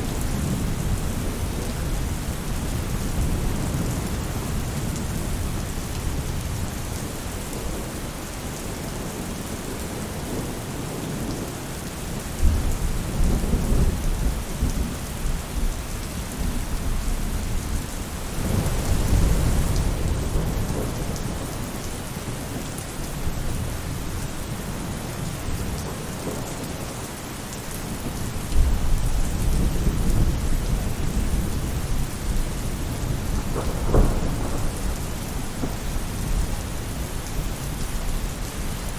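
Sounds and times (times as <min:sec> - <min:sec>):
rain on a roof: 0:00.0 - 0:38.9
low thunder rumbling: 0:12.4 - 0:22.3, 0:27.9 - 0:38.5.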